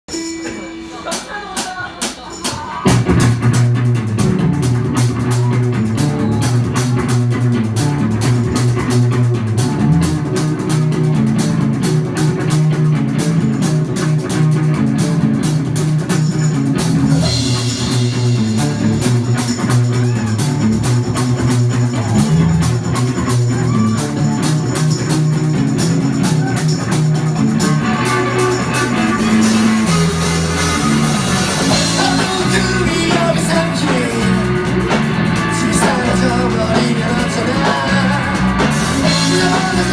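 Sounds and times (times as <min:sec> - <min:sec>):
drum kit steady beat: 0:00.1 - 0:39.9
electric guitar: 0:00.1 - 0:39.9
bass guitar: 0:02.8 - 0:39.9.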